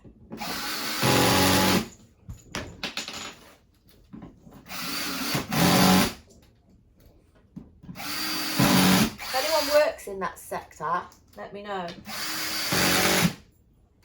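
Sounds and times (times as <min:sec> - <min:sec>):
power drill driving screws: 0:00.4 - 0:01.9, 0:04.7 - 0:06.2, 0:08.0 - 0:09.8, 0:12.0 - 0:13.4.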